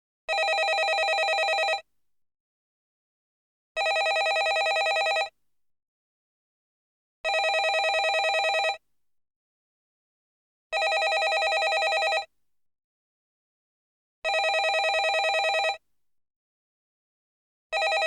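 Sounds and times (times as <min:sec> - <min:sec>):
telephone ringing: 0:00.3 - 0:01.8, 0:03.8 - 0:05.3, 0:07.3 - 0:08.8, 0:10.8 - 0:12.3, 0:14.3 - 0:15.8, 0:17.8 - 0:18.0.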